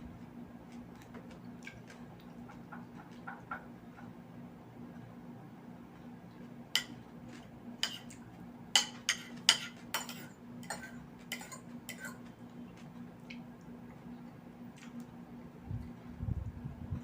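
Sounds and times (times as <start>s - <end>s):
low steady hum: 0.0s - 17.0s
cutlery clinking against dish: 8.8s - 12.3s.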